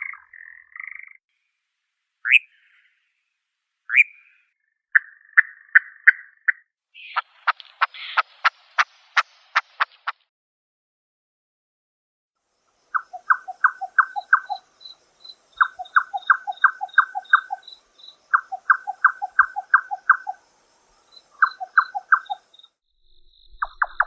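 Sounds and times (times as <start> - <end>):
nightjar calling: 0.0 - 1.2, 2.2 - 3.0, 3.9 - 8.4, 12.8 - 24.0
faint high insect-like pulsing: 12.4 - 24.0.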